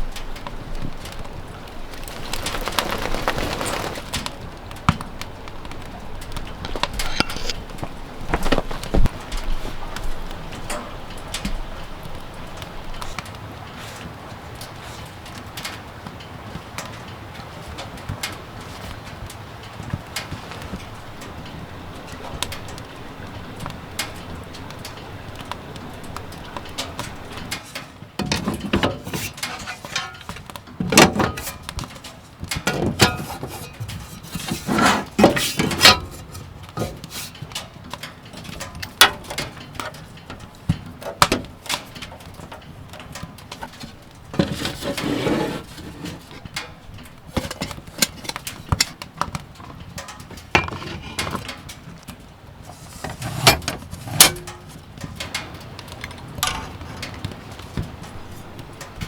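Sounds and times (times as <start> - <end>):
kitchenware clicking and knocking: 6.8 - 7.7.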